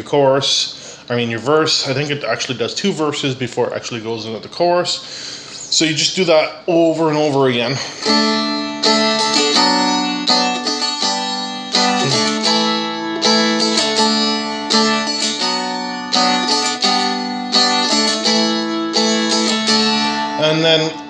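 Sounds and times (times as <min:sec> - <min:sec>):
dulcimer strummed: 0:07.8 - 0:21.0.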